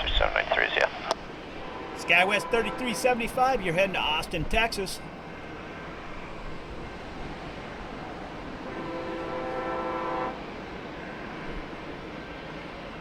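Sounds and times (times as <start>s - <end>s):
jet engines rumbling: 0.0s - 13.0s
horn sounding a flat chord: 1.6s - 3.6s, 8.6s - 10.4s.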